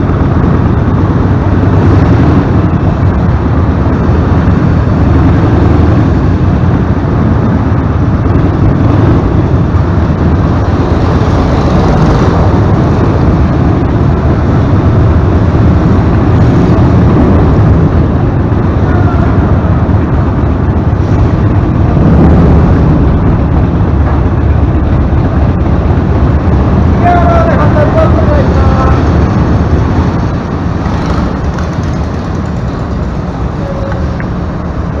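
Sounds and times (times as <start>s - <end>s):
motorcycle v-twin engine running: 28.8s - 35.0s.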